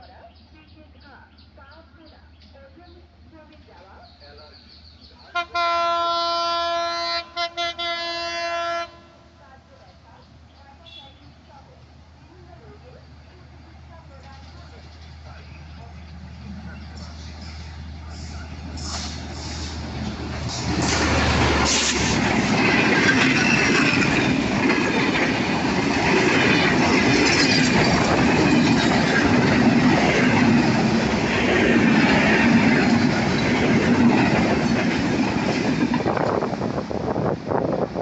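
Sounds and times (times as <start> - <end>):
train wheels rumbling and rattling: 9.7 - 38.0.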